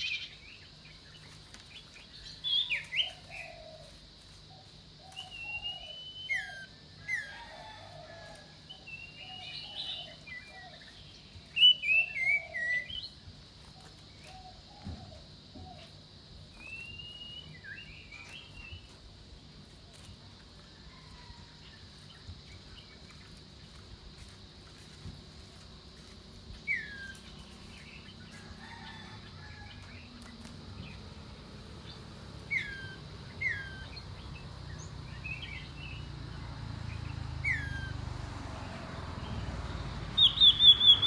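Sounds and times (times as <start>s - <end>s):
bird singing whistled phrases: 5.2s - 7.4s, 11.6s - 13.1s, 16.6s - 18.8s, 26.7s - 27.3s, 32.5s - 34.1s, 37.4s - 38.0s, 40.2s - 41.0s.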